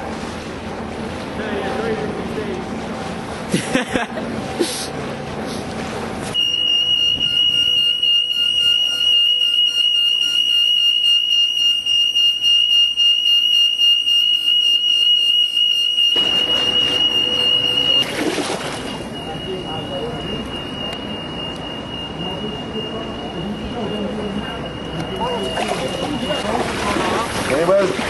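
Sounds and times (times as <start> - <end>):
high-pitched electronic tone: 6.4 - 12.3, 14.4 - 26.6.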